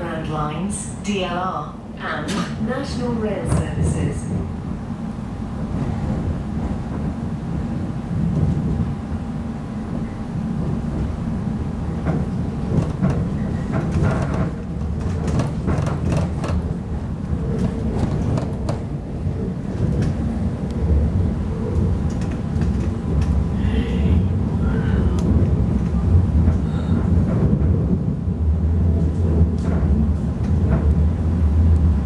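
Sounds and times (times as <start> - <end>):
train wheels rumbling: 0.0 - 32.0.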